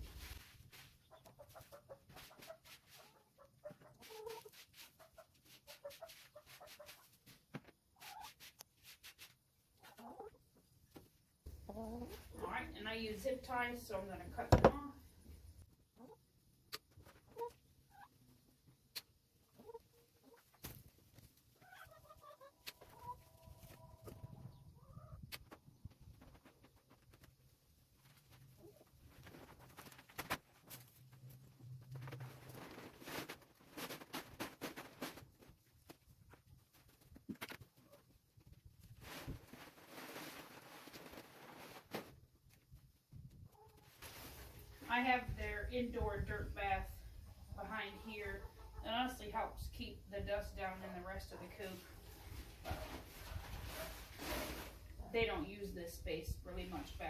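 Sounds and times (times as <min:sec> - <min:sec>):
hens clucking: 0:01.0 - 0:07.2, 0:47.6 - 0:49.1.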